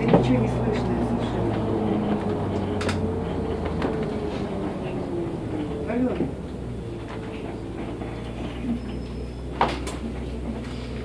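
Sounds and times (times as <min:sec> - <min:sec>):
bus ride hum: 0:00.0 - 0:11.0.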